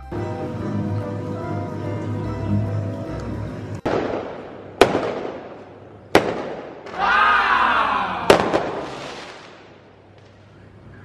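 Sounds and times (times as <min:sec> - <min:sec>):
drawn-out rising and falling tone: 0:00.0 - 0:04.8
fireworks bangs echoing: 0:03.8 - 0:07.1, 0:08.2 - 0:10.5.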